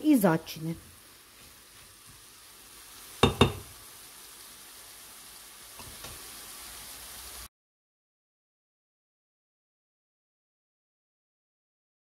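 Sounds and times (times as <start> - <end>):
vegetables sizzling in oil: 0.0 - 7.5
sharp knocks against pan: 3.2 - 3.7.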